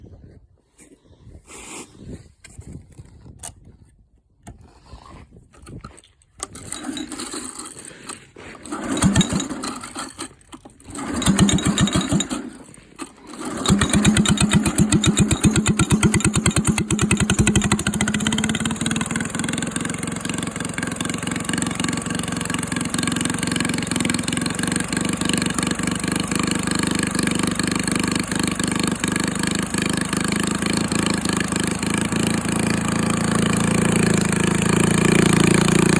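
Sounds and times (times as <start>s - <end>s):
small engine starting and running: 5.6s - 35.9s.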